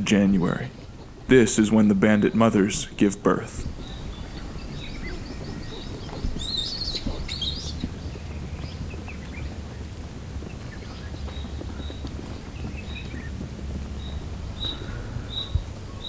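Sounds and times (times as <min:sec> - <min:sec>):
birds chirping: 0:00.0 - 0:16.0
steady low rumble: 0:00.0 - 0:16.0
bird warbling calls: 0:03.6 - 0:16.0.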